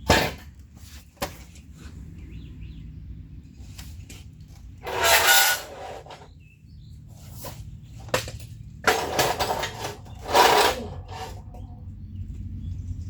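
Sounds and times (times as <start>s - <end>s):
steel tubing clattering and scraping: 4.8s - 6.4s, 7.2s - 11.7s.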